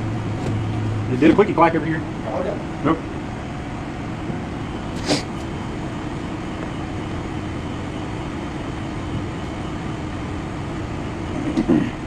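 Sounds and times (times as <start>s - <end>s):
brief high hiss: 5.0s - 5.4s.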